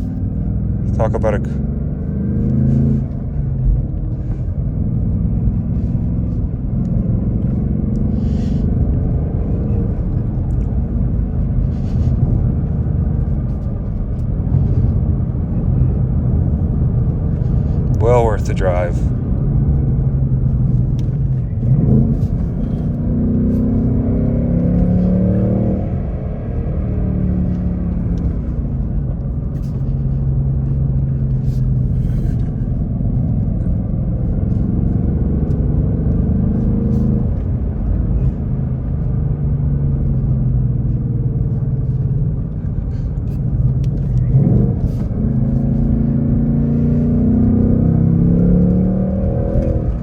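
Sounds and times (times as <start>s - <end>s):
car engine accelerating: 0.0s - 50.0s.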